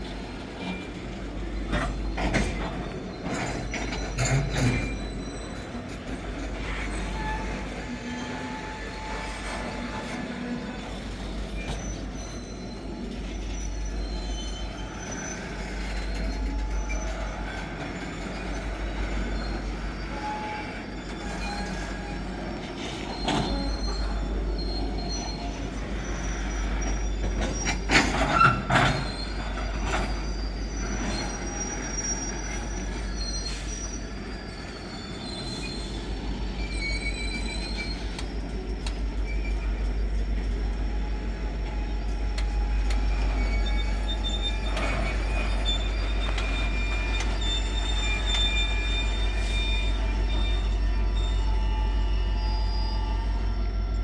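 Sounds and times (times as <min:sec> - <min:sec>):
high wheel squeal: 0:00.2 - 0:54.0.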